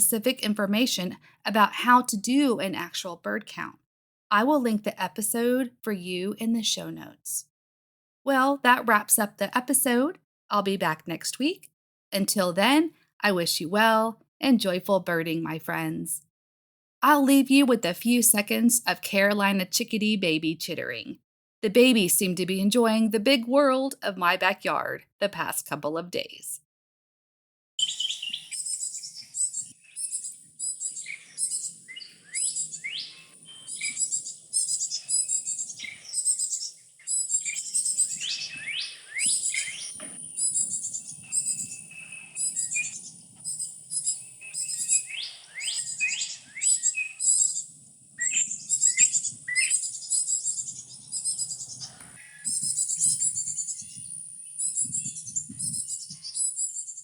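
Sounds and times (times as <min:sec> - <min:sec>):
chicks chittering: 0:27.8 - 0:56.5.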